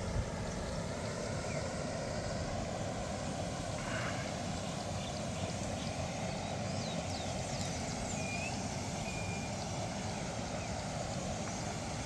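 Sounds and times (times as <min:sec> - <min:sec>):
running water: 0:00.0 - 0:12.0
small birds chirping: 0:05.0 - 0:09.8.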